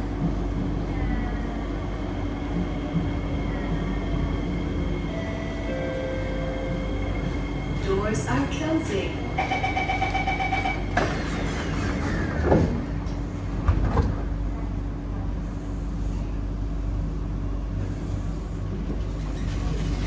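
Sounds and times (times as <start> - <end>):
train running hum: 0.0 - 20.0
door-closing warning beeps: 9.4 - 11.4
sliding doors shutting: 10.1 - 14.3, 19.0 - 20.0.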